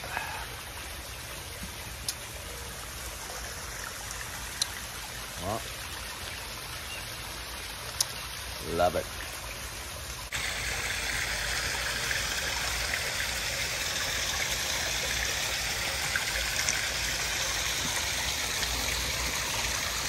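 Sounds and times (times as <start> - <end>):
waterfall splashing: 10.3 - 20.0.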